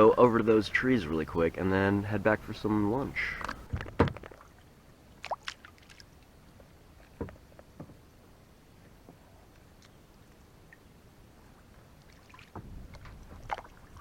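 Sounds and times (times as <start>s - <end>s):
paddle splashing water: 0.0s - 8.0s, 11.6s - 14.0s.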